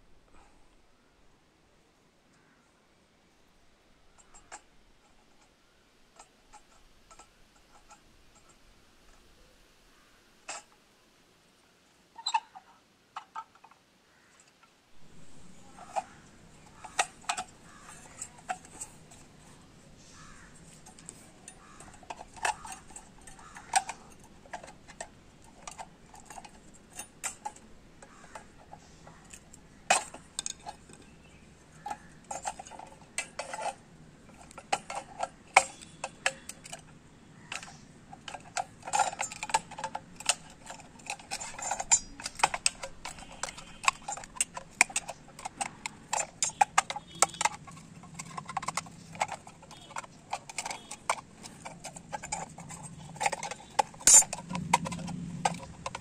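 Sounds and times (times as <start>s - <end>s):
metallic clicks of hand tools: 6.2s - 9.2s, 14.4s - 56.0s.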